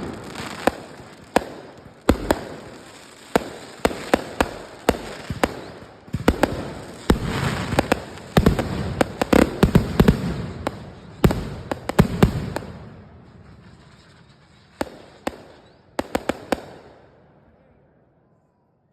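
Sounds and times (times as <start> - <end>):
fireworks bangs and crackling: 0.0 - 17.2.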